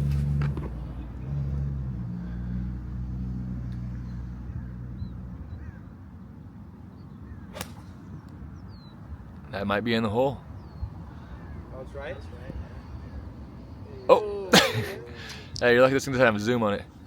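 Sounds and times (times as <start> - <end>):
vehicle low hum: 0.0 - 6.0, 7.0 - 9.5
golf club striking ball: 7.5 - 8.3.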